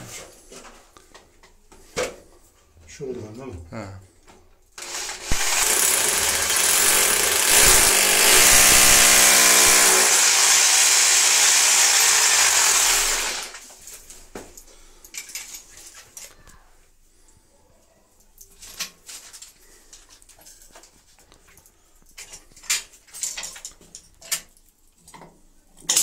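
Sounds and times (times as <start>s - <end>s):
rotary hammer drill boring wall: 4.8s - 13.6s.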